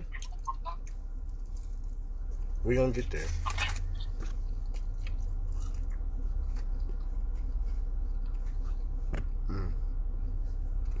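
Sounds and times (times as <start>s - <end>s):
short vocal sound: 9.4s - 9.8s.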